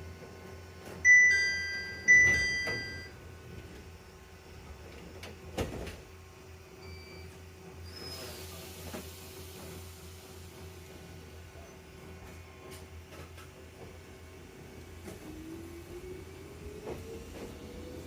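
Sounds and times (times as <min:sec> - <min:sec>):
chime ringing: 0:01.1 - 0:03.1.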